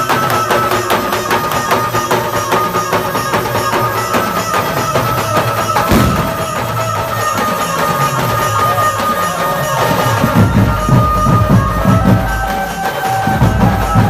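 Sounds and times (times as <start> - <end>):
band playing held melody: 0.0 - 14.0
steady drumming: 0.0 - 14.0
heavy drum hit: 5.8 - 6.8.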